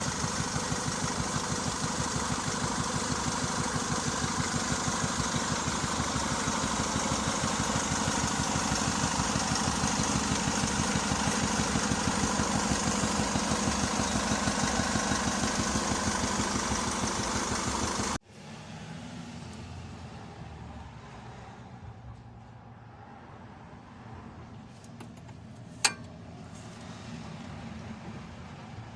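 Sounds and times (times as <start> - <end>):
car engine idling: 0.0 - 18.2.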